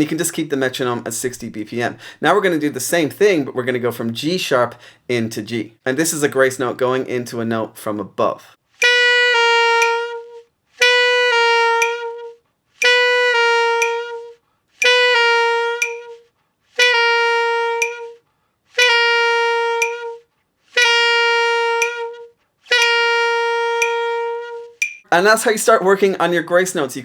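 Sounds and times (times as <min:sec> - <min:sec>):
saxophone playing: 0:08.8 - 0:25.0.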